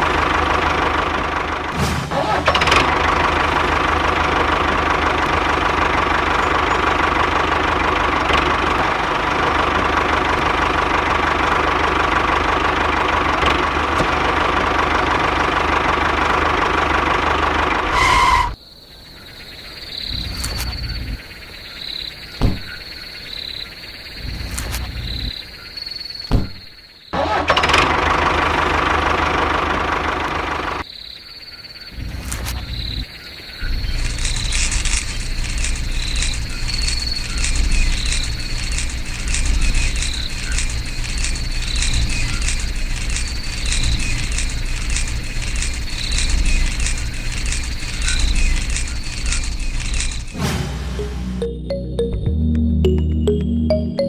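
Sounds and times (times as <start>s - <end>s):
small engine running: 0.0s - 18.3s, 27.2s - 30.8s, 33.9s - 50.4s
steady high chirr: 50.3s - 54.0s.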